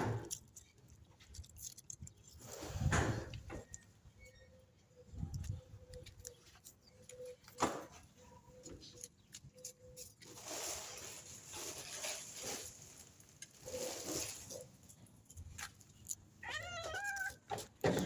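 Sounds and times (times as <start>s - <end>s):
cat meowing: 16.4s - 17.4s
cat raspy cries: 16.4s - 17.6s.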